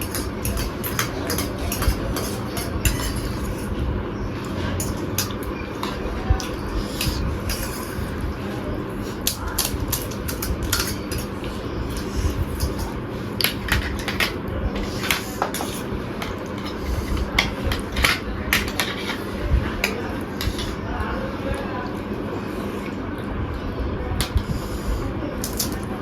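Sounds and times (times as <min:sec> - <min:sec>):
cutlery clinking on dishes: 0:00.0 - 0:03.7, 0:04.8 - 0:08.0, 0:09.2 - 0:20.8
low background hum: 0:00.0 - 0:26.0.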